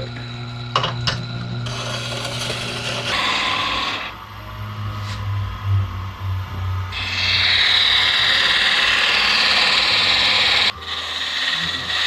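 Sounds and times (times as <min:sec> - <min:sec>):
low motor hum: 0:00.0 - 0:12.0
steel tool grinding hiss: 0:06.9 - 0:12.0.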